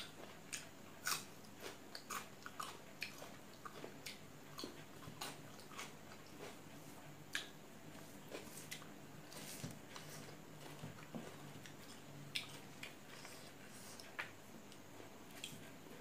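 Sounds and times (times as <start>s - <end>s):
mouth chewing and smacking: 0.5s - 6.6s, 7.3s - 10.4s, 11.0s - 14.4s.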